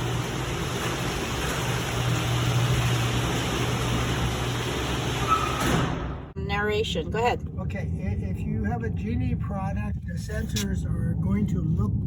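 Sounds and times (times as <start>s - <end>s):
garage door opener motor hum: 0.0s - 6.3s
garage door rattling: 0.0s - 6.4s.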